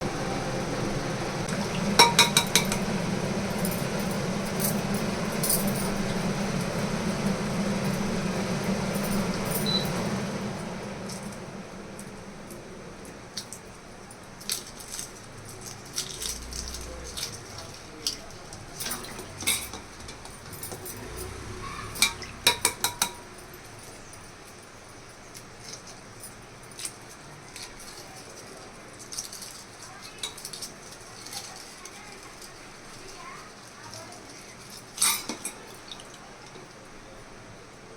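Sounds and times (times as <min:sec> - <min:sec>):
steady low hum: 0:00.0 - 0:24.7
kitchenware clinking: 0:01.5 - 0:03.0, 0:15.6 - 0:24.0, 0:34.6 - 0:36.6.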